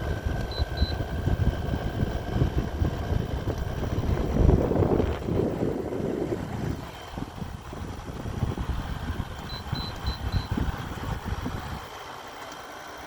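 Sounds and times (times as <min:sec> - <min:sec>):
air conditioner hum: 0:00.0 - 0:13.0
short high beeps: 0:00.5 - 0:01.0, 0:09.5 - 0:10.6.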